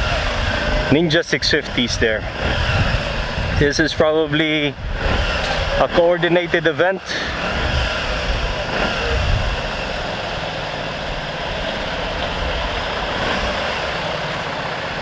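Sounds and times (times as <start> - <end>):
wind rumble on microphone: 0.0 - 6.1, 7.4 - 10.3
motorcycle engine drone: 0.0 - 15.0
street traffic: 0.0 - 15.0.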